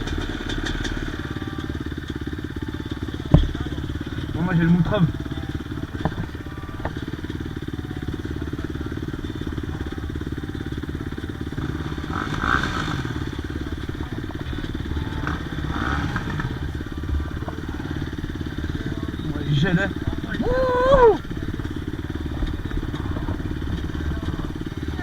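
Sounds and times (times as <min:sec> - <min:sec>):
dirt bike engine idling: 0:00.0 - 0:25.0.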